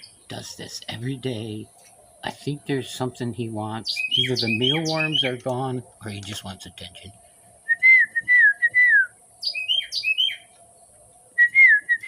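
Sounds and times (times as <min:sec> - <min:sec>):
wren singing whistled notes: 0:00.0 - 0:00.3, 0:03.8 - 0:05.5, 0:07.6 - 0:12.0.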